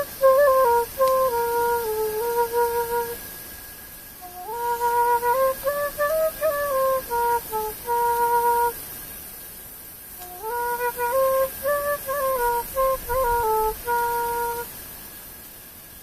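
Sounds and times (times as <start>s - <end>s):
solo flute melody: 0.0s - 3.2s, 4.2s - 8.8s, 10.2s - 14.7s.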